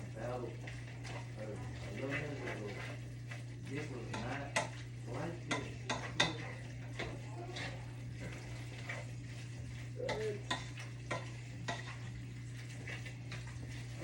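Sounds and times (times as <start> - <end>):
utensil scraping food in pan: 0.0 - 14.0
utensil clicks against pan: 5.5 - 7.2.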